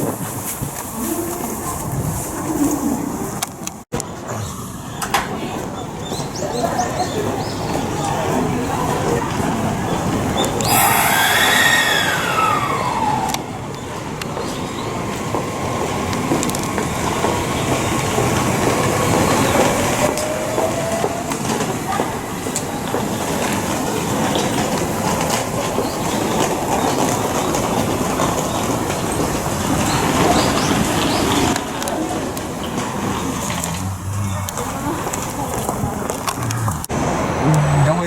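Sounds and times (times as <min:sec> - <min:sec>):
train wheels rumbling on track: 0:03.0 - 0:38.0
electric train whine: 0:09.4 - 0:31.1.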